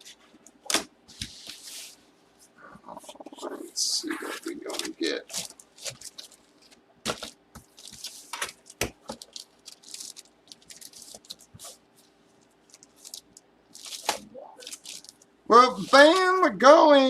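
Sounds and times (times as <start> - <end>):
packaging rustling and tearing: 4.4 - 11.8, 12.6 - 15.2.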